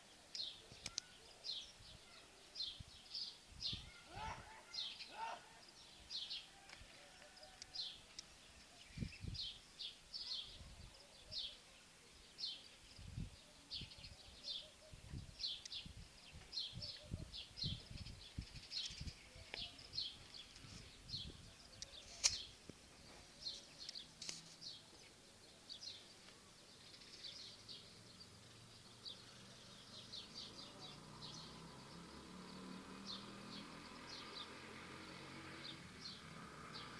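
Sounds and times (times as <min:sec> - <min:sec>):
small birds chirping: 0:00.0 - 0:36.9
sharp click: 0:21.8 - 0:22.5.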